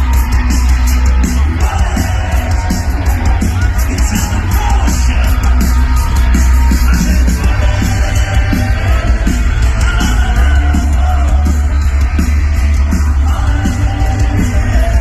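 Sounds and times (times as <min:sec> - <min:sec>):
boomy bass: 0:00.0 - 0:15.0
live rock band: 0:00.0 - 0:15.0
steady drum beat: 0:00.0 - 0:15.0.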